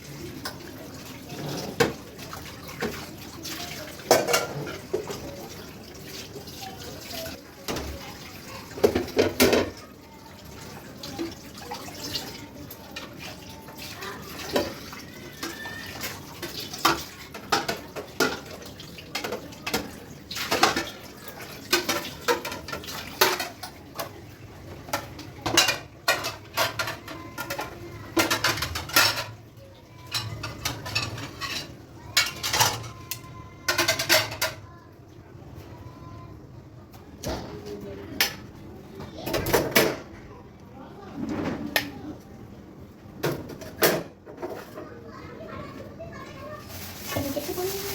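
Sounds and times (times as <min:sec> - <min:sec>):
dishes and cutlery clattering: 0:00.1 - 0:34.7, 0:37.2 - 0:40.1, 0:43.2 - 0:45.7.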